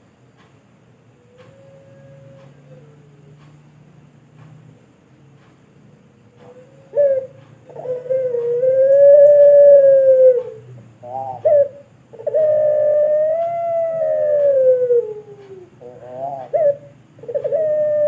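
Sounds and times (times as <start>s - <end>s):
dove cooing: 6.3s - 18.0s.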